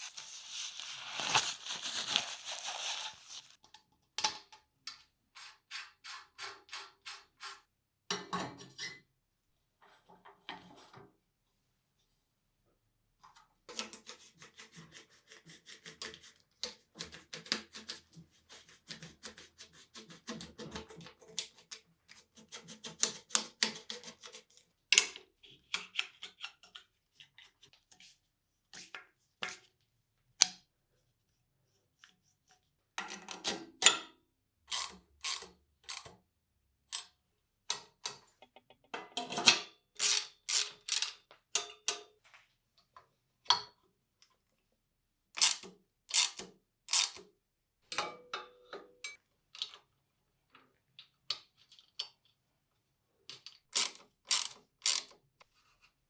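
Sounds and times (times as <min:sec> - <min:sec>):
small clicks taps and rubbing: 0:37.7 - 0:39.2.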